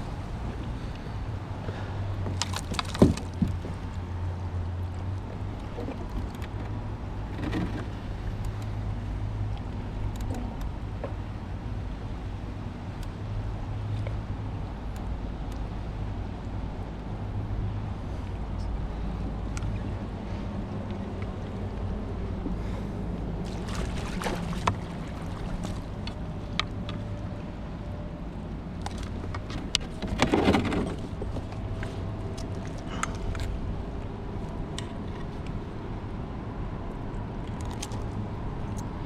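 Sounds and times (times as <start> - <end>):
wind: 0.0 - 39.0
steady low hum: 3.2 - 29.8
sharp clicks and knocks: 5.5 - 11.5
water noise: 20.9 - 27.8.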